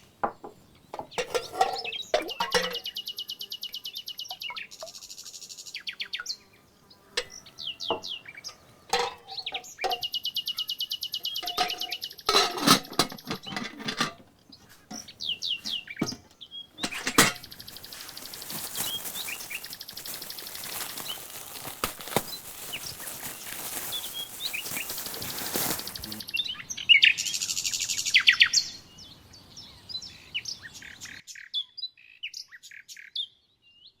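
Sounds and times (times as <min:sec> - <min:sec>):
songbirds singing: 0:00.0 - 0:34.0.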